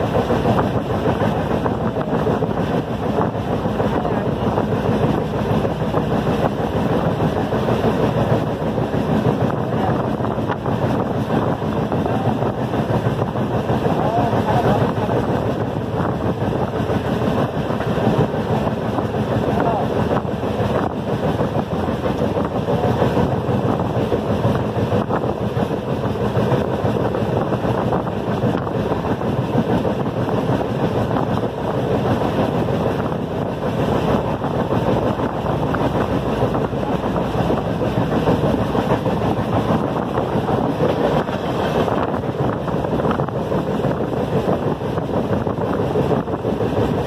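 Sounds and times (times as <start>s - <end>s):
air rushing at window: 0.0s - 47.0s
train wheels running on rails: 0.0s - 47.0s.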